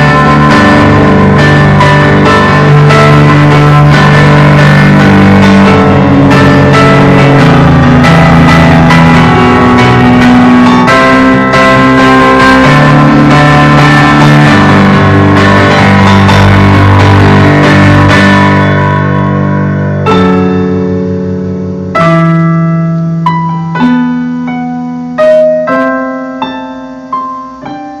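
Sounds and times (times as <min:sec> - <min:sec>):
slow solo piano: 0:00.0 - 0:28.0.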